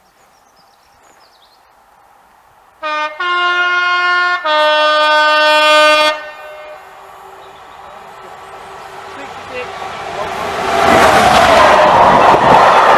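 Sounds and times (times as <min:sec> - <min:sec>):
two-tone train horn: 0:02.8 - 0:07.0.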